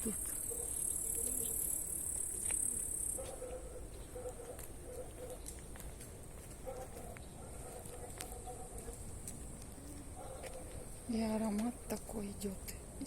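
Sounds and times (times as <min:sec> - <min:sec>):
cricket trilling: 0:00.0 - 0:03.2.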